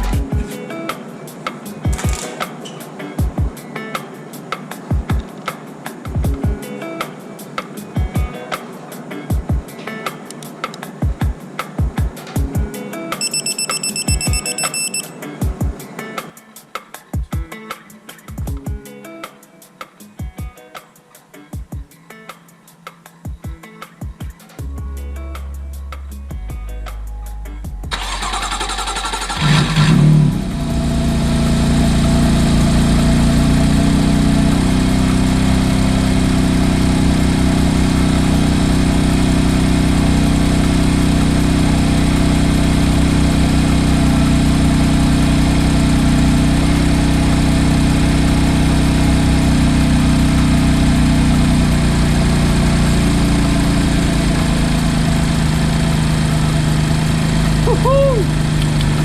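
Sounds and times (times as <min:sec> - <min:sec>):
car engine starting and idling: 0:27.7 - 0:59.0.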